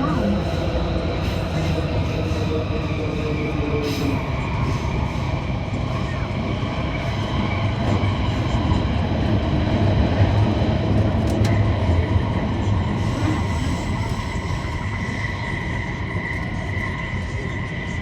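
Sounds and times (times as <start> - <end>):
train rumbling on track: 0.0 - 18.0.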